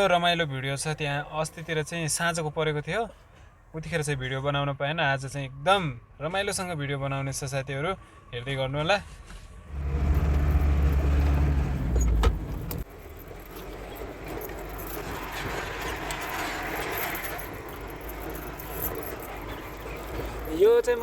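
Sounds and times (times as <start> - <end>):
truck engine droning: 9.6 - 21.0.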